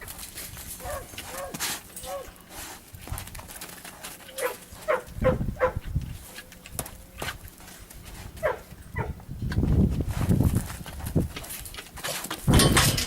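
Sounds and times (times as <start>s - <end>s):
dog barking: 0.8s - 2.3s, 4.4s - 5.8s, 8.4s - 9.2s.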